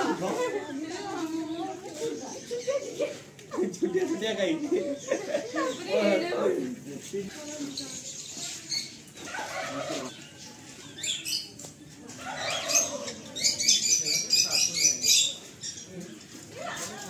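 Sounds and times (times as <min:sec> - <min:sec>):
small birds chirping and chattering: 0:00.0 - 0:17.0.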